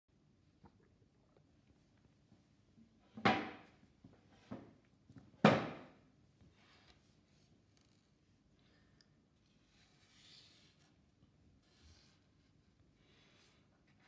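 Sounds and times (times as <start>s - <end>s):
knocks on a hard surface: 5.4s - 5.9s.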